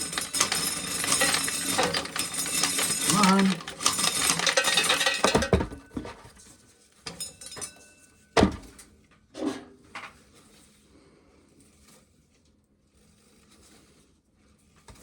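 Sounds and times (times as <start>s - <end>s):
corn clattering in hard container: 0.0s - 6.4s.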